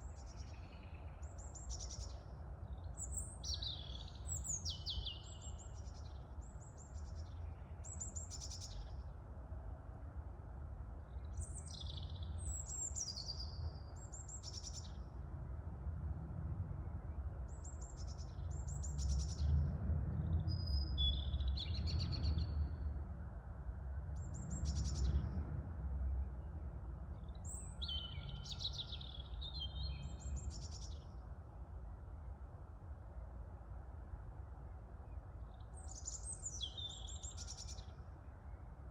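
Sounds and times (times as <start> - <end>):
low rumble of wind: 0.0 - 38.9.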